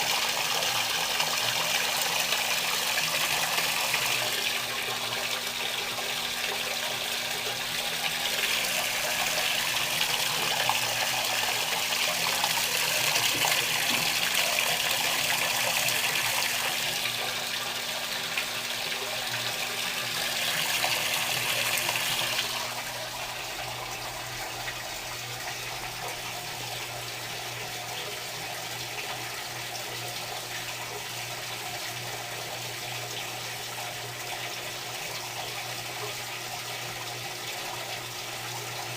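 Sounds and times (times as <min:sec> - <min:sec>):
washing machine water rushing: 0:00.0 - 0:38.9.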